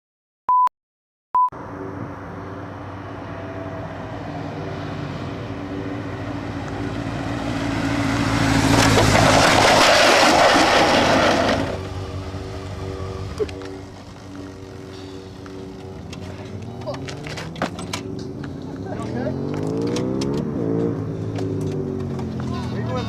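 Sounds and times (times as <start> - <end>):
motorcycle engine running: 10.6 - 23.0.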